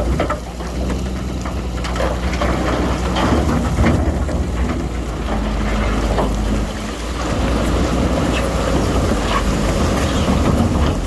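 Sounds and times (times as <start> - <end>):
crackling and clatter: 0.0 - 11.0
diesel machinery rumbling: 0.0 - 11.0.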